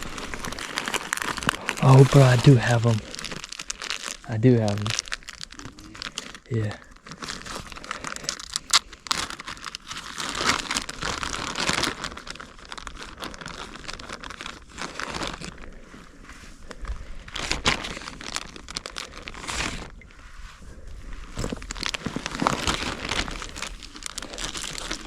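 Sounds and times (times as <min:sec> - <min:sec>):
plastic rustling and crinkling: 0:00.0 - 0:25.0.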